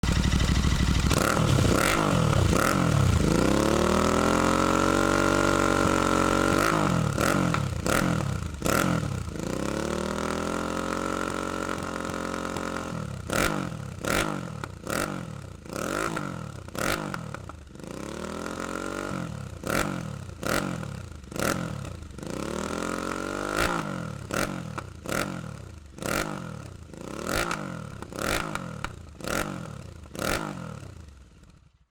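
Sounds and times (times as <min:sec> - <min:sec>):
exhaust cracks: 0:00.0 - 0:09.0
motorcycle engine revving: 0:00.0 - 0:31.9.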